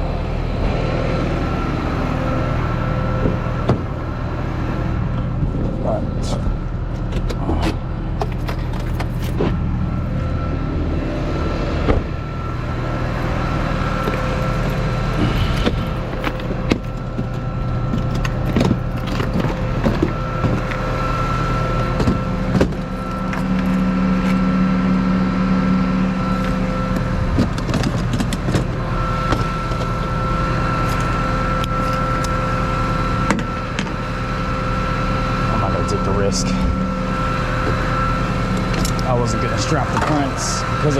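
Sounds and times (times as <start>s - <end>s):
thin steady whine: 0.0s - 40.9s
truck engine humming: 0.0s - 40.9s.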